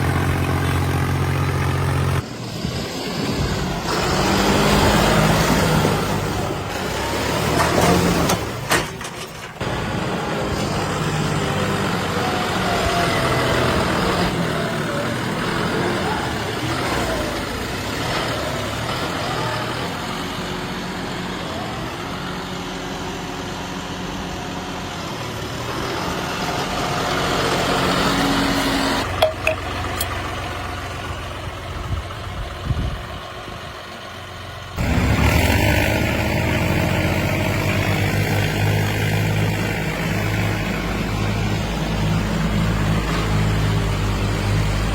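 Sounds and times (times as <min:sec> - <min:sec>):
tractor diesel engines running: 0:00.0 - 0:44.9
people's voices: 0:09.8 - 0:22.3.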